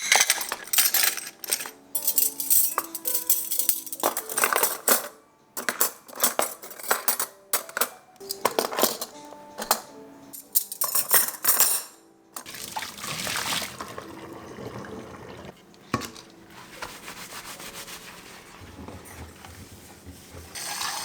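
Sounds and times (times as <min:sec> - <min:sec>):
dishes clinking: 0:00.0 - 0:12.6, 0:15.4 - 0:16.4
tap running water into sink: 0:12.4 - 0:16.2.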